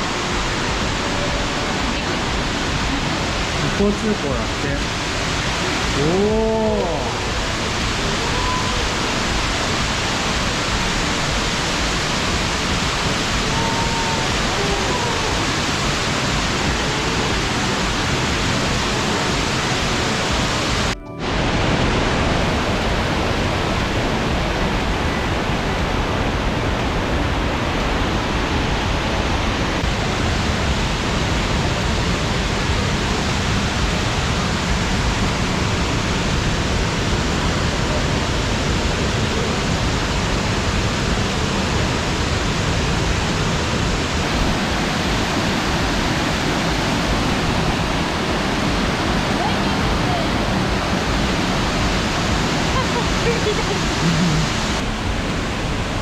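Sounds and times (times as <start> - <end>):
roar of falling water: 0.0 - 56.0.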